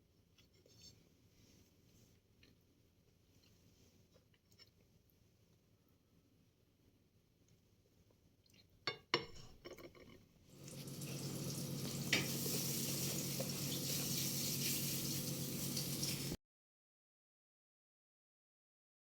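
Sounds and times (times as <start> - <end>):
kitchenware clinking: 8.9 - 14.8
kitchen hiss: 10.5 - 16.4.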